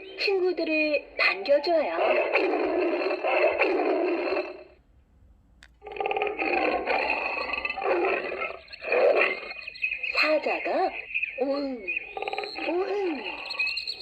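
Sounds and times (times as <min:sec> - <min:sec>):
click: 0:05.6 - 0:05.8
recorded big cat roars: 0:05.8 - 0:09.5.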